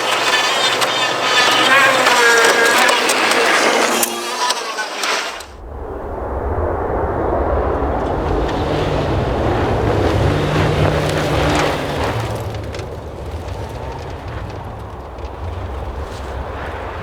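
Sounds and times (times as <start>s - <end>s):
rally car engine: 0.0s - 5.7s, 7.0s - 17.0s
wind on microphone: 5.5s - 12.1s.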